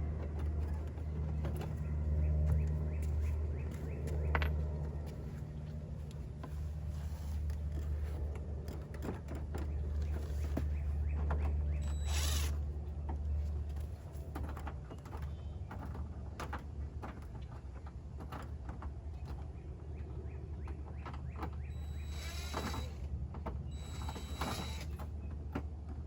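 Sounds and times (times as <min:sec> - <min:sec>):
steady low hum: 0:00.0 - 0:26.0
screws clicking and scraping: 0:11.8 - 0:12.6, 0:21.8 - 0:23.0, 0:23.8 - 0:25.0.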